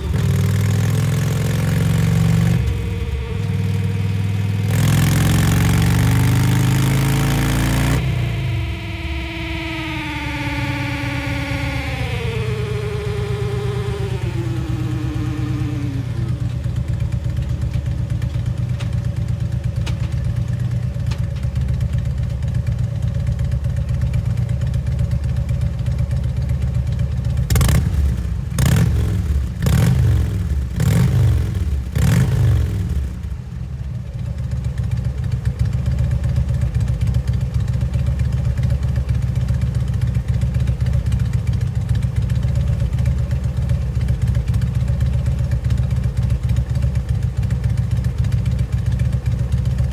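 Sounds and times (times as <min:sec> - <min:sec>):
motorcycle throttle blips: 0:00.0 - 0:17.8
motorcycle engine idling: 0:00.0 - 0:20.8, 0:32.7 - 0:49.9.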